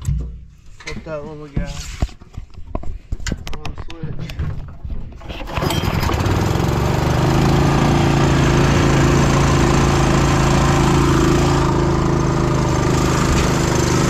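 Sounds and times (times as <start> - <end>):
small gasoline engine starting: 5.2 - 14.0.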